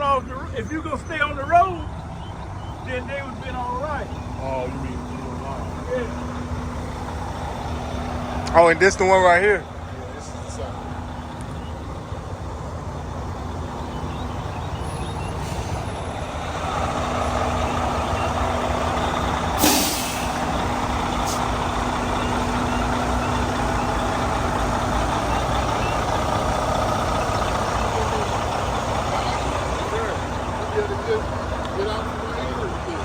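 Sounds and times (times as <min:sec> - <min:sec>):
diesel truck engine running: 0:00.0 - 0:33.0
air brake hiss: 0:15.4 - 0:15.8, 0:19.6 - 0:20.5.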